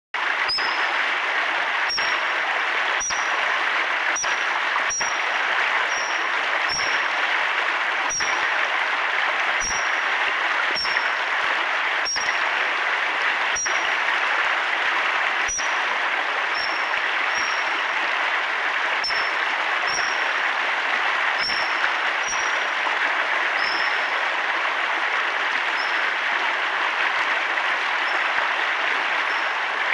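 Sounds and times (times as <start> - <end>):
running river water: 0.2 - 29.9
otter cub whistled calls: 0.5 - 0.8, 1.9 - 2.2, 3.0 - 3.3, 4.2 - 5.2, 5.9 - 7.1, 8.1 - 8.4, 9.6 - 10.0, 10.8 - 11.1, 12.1 - 12.4, 17.4 - 17.7, 19.9 - 20.2, 21.4 - 22.5
otter cub whistling: 10.8 - 11.0.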